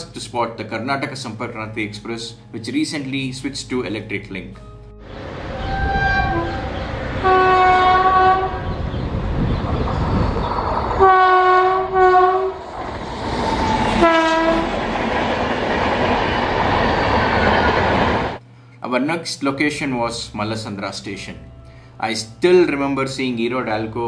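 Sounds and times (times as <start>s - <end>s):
train horn: 5.1s - 8.8s, 11.0s - 12.7s, 13.9s - 14.8s.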